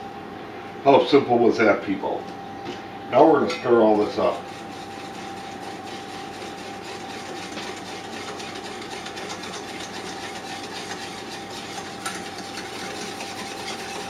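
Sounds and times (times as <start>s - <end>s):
steady hum: 0.0s - 14.0s
spoon scraping a container: 4.2s - 14.0s.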